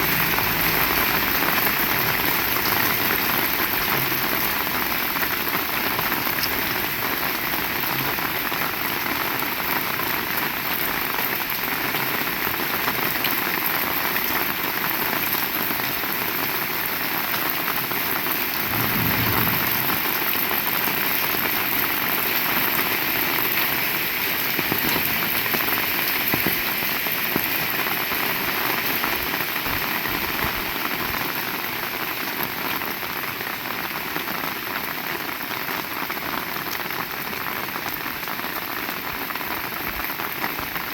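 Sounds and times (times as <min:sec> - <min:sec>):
heavy rain falling: 0:00.0 - 0:40.9
low rumble: 0:18.6 - 0:21.0.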